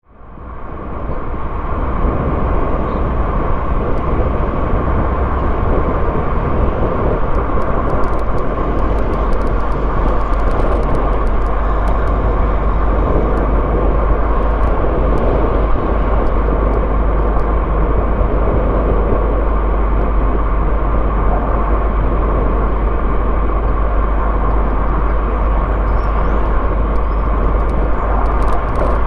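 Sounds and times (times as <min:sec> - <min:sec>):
car engine and road noise: 0:00.0 - 0:29.0
faint high ticks: 0:07.2 - 0:13.6.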